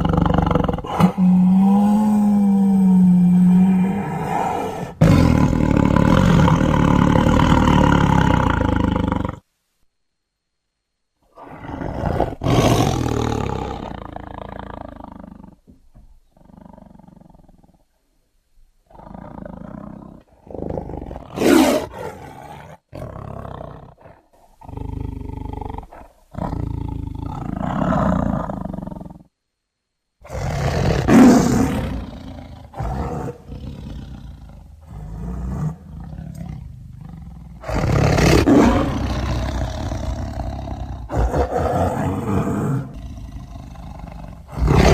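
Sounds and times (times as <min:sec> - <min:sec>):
tiger roaring: 0:00.0 - 0:09.4, 0:11.3 - 0:15.6, 0:18.9 - 0:29.3, 0:30.2 - 0:44.9
tiger growling: 0:00.0 - 0:09.5, 0:11.3 - 0:18.1, 0:18.8 - 0:29.3, 0:30.2 - 0:44.9.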